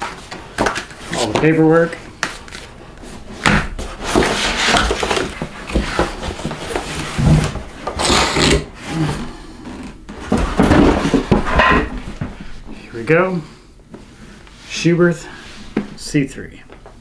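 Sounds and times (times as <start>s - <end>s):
packaging rustling and scraping: 0.0s - 12.7s.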